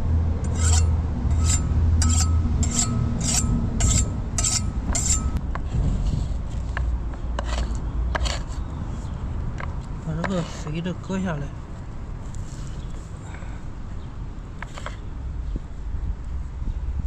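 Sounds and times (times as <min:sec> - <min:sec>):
low traffic rumble: 0:00.0 - 0:17.0
kitchen knife scraping: 0:00.4 - 0:05.4, 0:07.4 - 0:08.6, 0:10.2 - 0:10.7.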